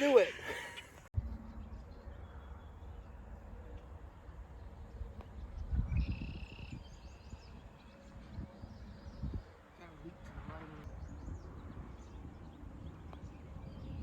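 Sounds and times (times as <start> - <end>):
wind on microphone: 5.3 - 14.0.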